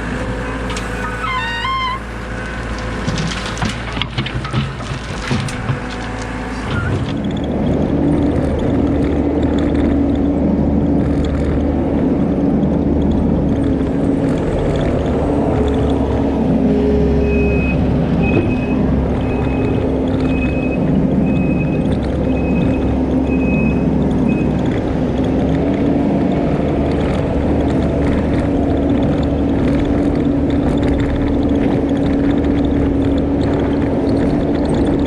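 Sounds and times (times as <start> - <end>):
diesel engine running: 0.0 - 35.0
backup alarm beeping: 17.2 - 24.6.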